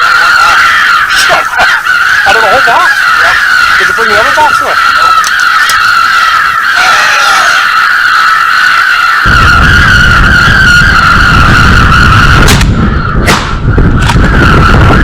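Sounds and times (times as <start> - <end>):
sharp clicks: 5.2 - 5.8
wind buffeting microphone: 9.2 - 15.0.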